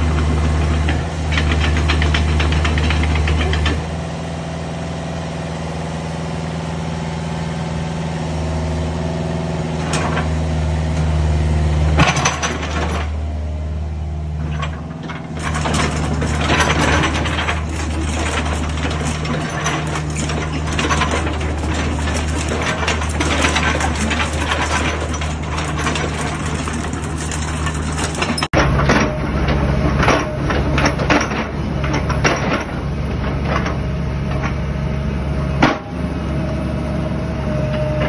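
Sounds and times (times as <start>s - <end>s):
diesel engine running: 0.0s - 38.0s
mechanical clatter: 0.4s - 3.8s, 12.0s - 13.2s, 14.5s - 34.6s.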